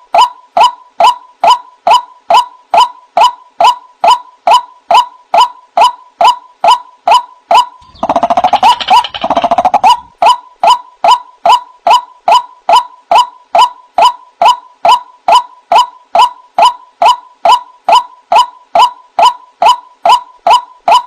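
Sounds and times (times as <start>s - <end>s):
rapid rattling bird notes: 7.8s - 10.1s
waterhen calling: 7.8s - 10.1s.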